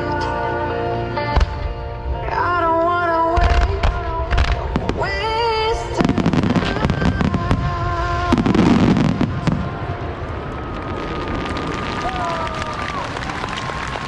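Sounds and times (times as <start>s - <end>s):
fireworks bangs and crackling: 3.4s - 14.0s.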